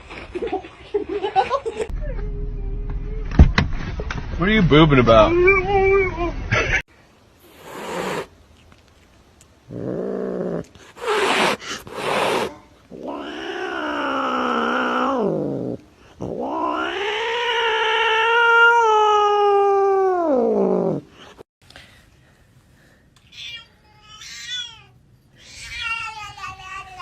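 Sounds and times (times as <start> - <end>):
cat yowling: 16.4 - 20.9.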